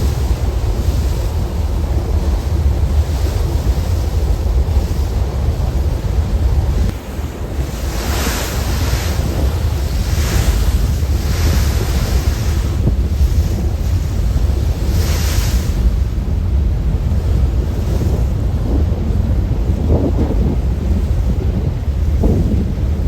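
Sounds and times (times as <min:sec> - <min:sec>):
rushing water: 0:00.0 - 0:16.2
heavy low rumble: 0:00.0 - 0:23.0
wind buffeting microphone: 0:00.0 - 0:23.0.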